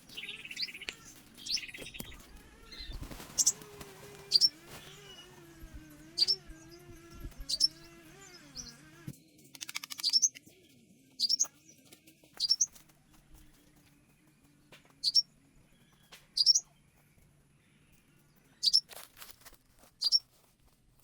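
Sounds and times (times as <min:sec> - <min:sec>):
rattling bird trill: 0:00.0 - 0:03.6, 0:04.3 - 0:05.4, 0:06.1 - 0:08.8, 0:09.6 - 0:10.4, 0:11.2 - 0:11.5, 0:12.4 - 0:12.8, 0:15.0 - 0:15.2, 0:16.4 - 0:16.6, 0:18.6 - 0:18.9, 0:20.0 - 0:20.2
small birds chirping: 0:00.0 - 0:20.5.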